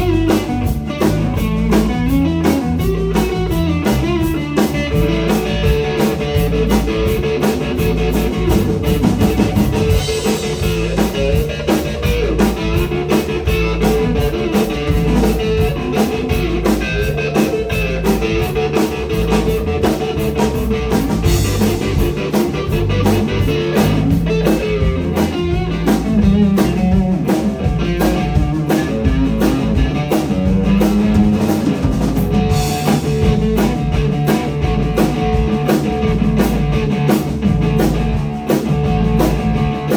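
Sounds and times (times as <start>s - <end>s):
bass line: 0.0s - 39.9s
drum kit: 0.0s - 39.9s
electric guitar bending notes: 0.0s - 39.9s.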